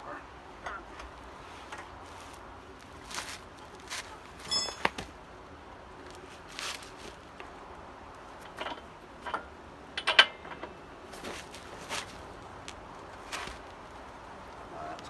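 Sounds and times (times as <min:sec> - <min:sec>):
metal clanks: 0:04.4 - 0:05.1, 0:08.4 - 0:12.2.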